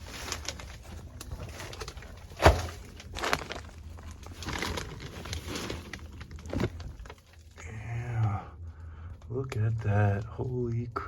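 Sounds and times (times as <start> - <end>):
scraping and rustling: 0.0 - 7.4.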